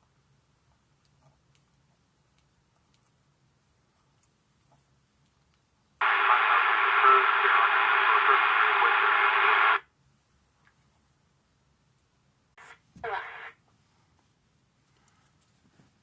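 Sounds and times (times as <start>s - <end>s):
radio static hiss: 6.0s - 9.9s, 12.6s - 13.6s.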